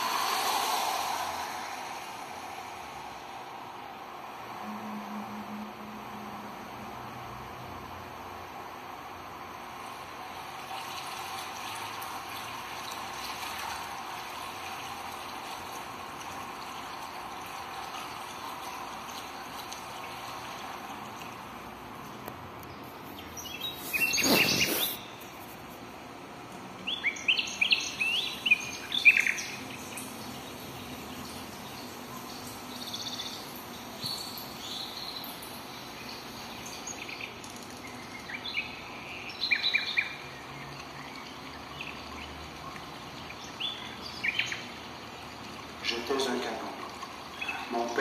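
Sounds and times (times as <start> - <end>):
loud burst of noise: 0.0 - 7.2
steady hiss: 0.0 - 40.7
birds calling: 22.7 - 25.6.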